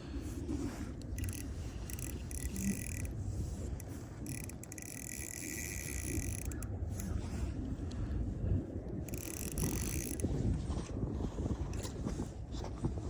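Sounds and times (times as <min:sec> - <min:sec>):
wind rumble on microphone: 0:00.0 - 0:13.0
fishing reel winding in line: 0:00.9 - 0:07.2, 0:09.0 - 0:10.4.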